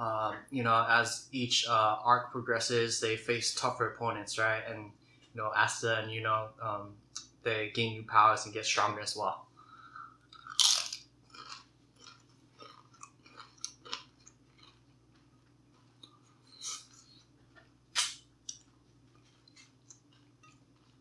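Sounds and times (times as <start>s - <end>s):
person chewing food: 9.8s - 21.0s.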